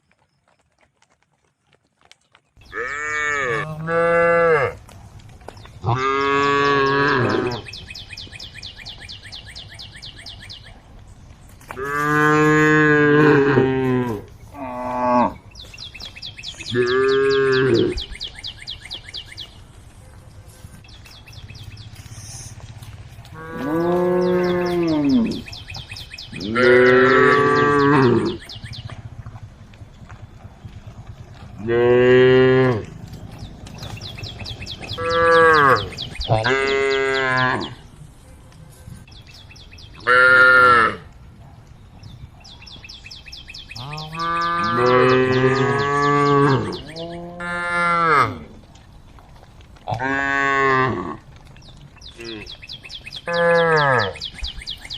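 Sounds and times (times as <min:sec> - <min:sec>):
cows mooing: 0:02.6 - 0:04.8, 0:05.8 - 0:07.8, 0:11.7 - 0:15.4, 0:16.6 - 0:18.1, 0:23.2 - 0:28.9, 0:31.0 - 0:37.9, 0:40.0 - 0:41.1, 0:43.8 - 0:48.6, 0:49.9 - 0:51.3, 0:53.2 - 0:54.2.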